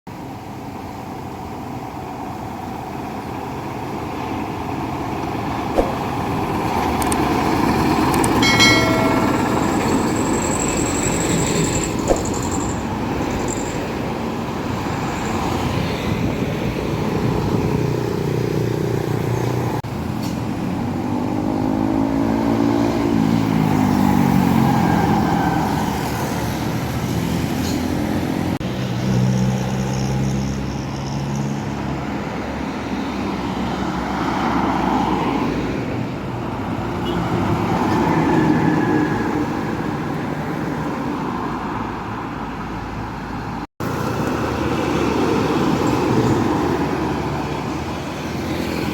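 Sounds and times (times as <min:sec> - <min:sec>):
truck and bus engines: 0:00.1 - 0:48.9
tyre and road noise: 0:00.1 - 0:48.9.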